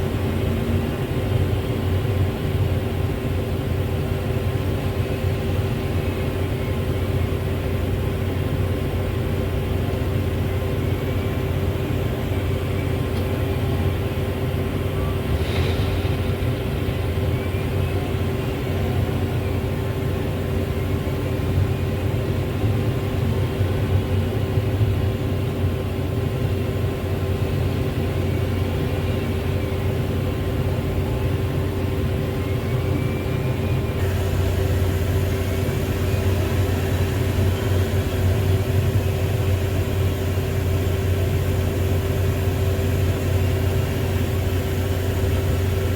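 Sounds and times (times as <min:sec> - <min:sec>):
heavy diesel engine running: 0:00.0 - 0:45.9
faint whines: 0:28.2 - 0:45.9.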